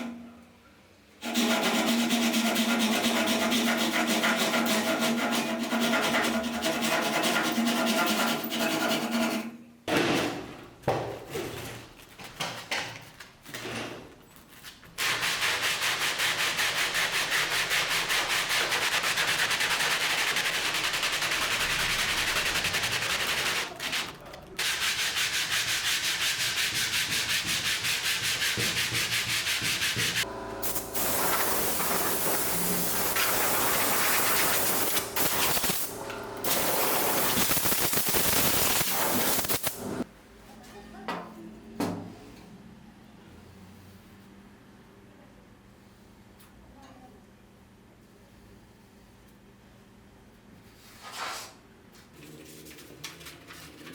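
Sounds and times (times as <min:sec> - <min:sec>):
sanding in rapid strokes: 0:01.4 - 0:09.4, 0:15.0 - 0:30.3.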